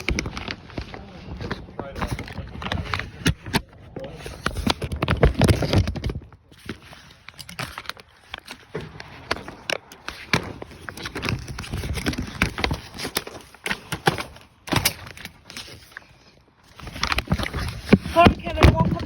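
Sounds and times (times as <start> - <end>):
plastic sheeting crinkling: 0.0 - 3.0.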